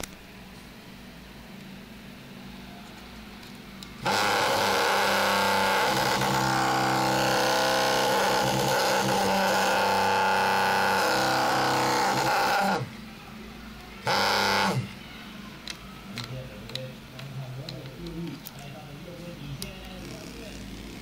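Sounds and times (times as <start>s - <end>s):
vibration motor buzzing: 4.0s - 13.0s, 14.0s - 15.0s.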